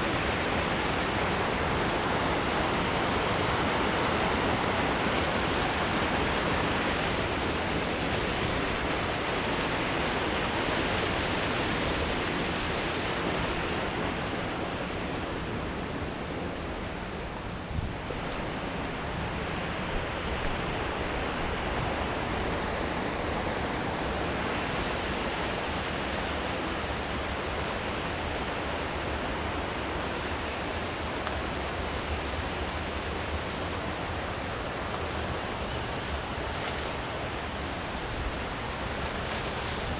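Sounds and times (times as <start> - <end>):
river water pouring over a weir: 0.0 - 39.9.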